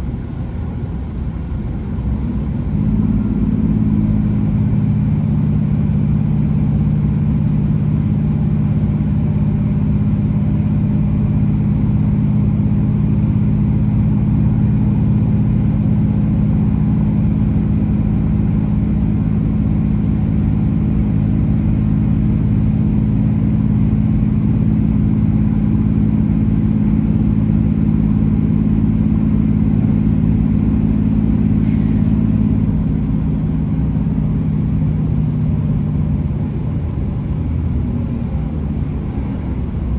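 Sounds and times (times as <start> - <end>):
train diesel engine drone: 0.0 - 39.9
train running rumble: 0.0 - 39.9.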